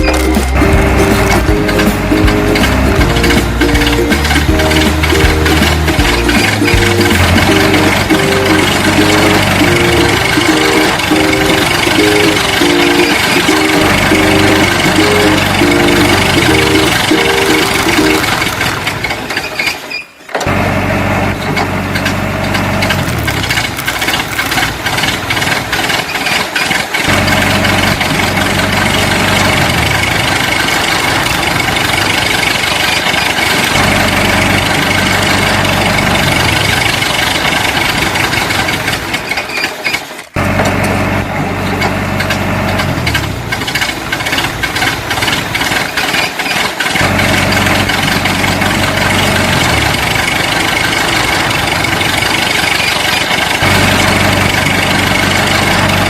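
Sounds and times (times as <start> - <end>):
steady high tones: 0.0 - 18.9
heavy machinery engine running: 0.0 - 56.0.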